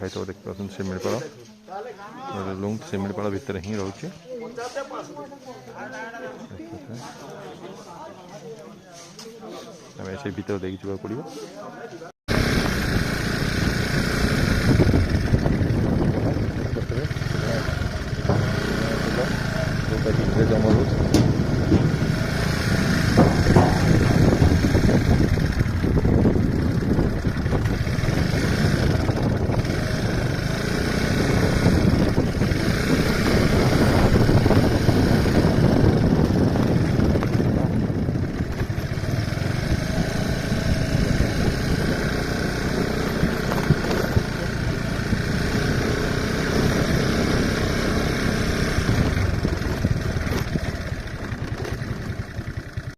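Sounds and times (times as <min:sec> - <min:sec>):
vehicle engine and road noise: 0:12.3 - 0:52.9.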